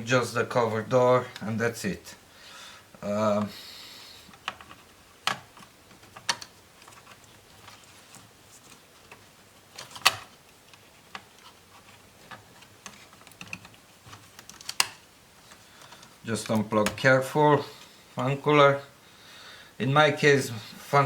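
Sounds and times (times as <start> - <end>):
screwdriver and laptop parts clicking: 12.3 - 15.0.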